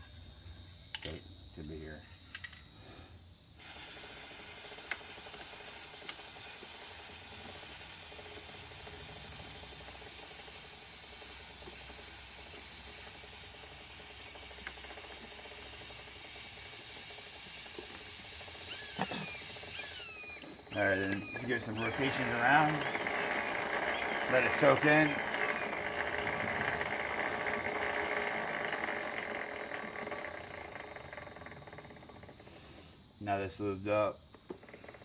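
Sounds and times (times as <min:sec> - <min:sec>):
aerosol can spraying hiss: 0:02.6 - 0:22.4.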